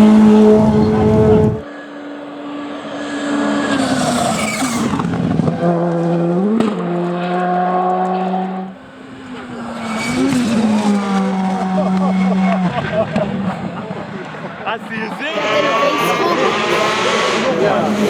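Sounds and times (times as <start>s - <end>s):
rally car engine revving: 0.0s - 1.6s, 2.6s - 18.0s
rally car engine steady note: 0.0s - 1.6s.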